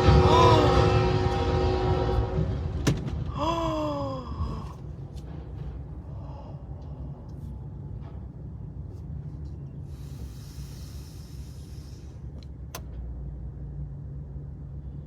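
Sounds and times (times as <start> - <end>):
train horn: 0.0 - 3.4
moving train rumble: 0.0 - 15.0
person gasping: 3.3 - 4.9, 6.1 - 7.5.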